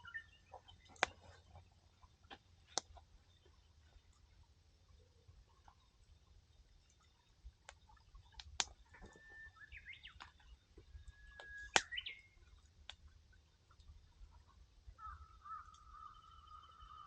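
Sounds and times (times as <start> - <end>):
campfire crackling and popping: 7.6 - 8.9, 11.3 - 12.2
bird whistling and warbling: 9.0 - 10.2, 11.0 - 12.4.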